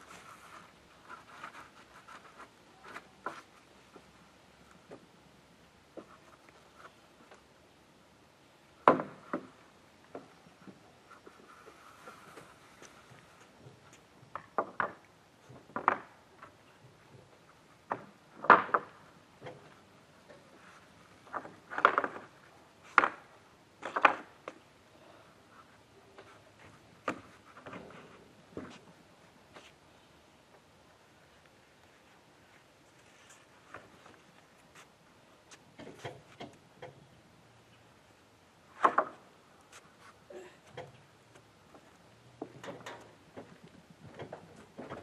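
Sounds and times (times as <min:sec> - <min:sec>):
sharp knocks and clunks: 0:08.8 - 0:10.8, 0:13.0 - 0:20.4, 0:38.8 - 0:39.3.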